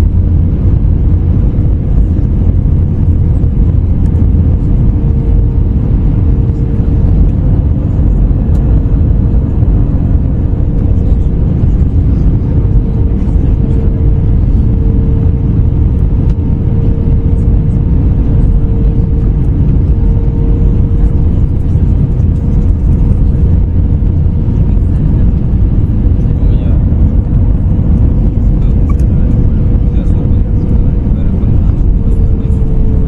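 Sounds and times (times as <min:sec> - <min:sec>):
aircraft cabin engine rumble: 0:00.0 - 0:33.0
steady humming tone: 0:00.0 - 0:33.0.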